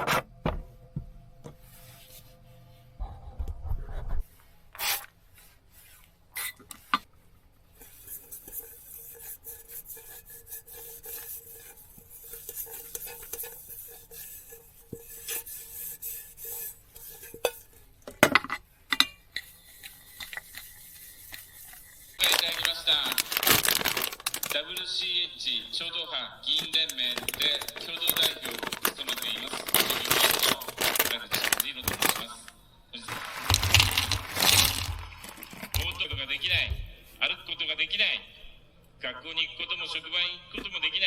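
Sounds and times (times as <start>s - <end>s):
dishes rubbing and scraping: 7.7s - 24.6s, 26.5s - 32.4s, 33.1s - 36.8s.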